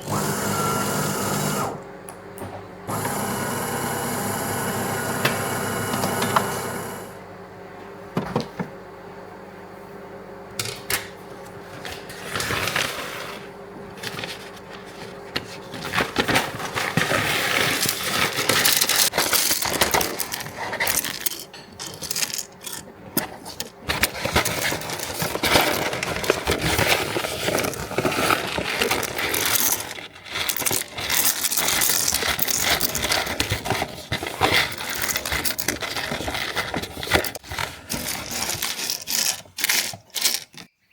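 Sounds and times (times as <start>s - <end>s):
coffee beans rattling in container: 12.4s - 22.9s, 23.6s - 40.9s.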